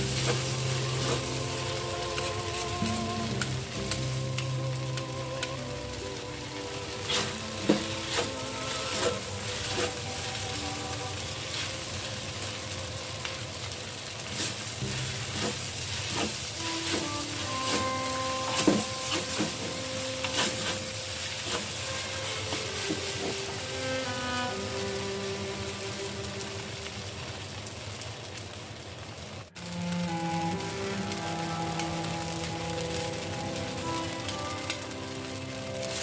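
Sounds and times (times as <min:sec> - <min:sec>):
noodles sizzling in pan: 0:00.0 - 0:36.0
spatula scraping pan: 0:00.1 - 0:01.4, 0:07.1 - 0:10.0, 0:15.1 - 0:23.6.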